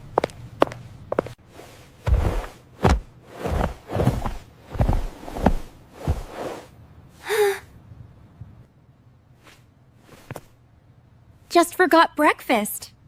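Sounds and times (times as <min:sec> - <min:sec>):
heavy footsteps: 0:00.0 - 0:06.7.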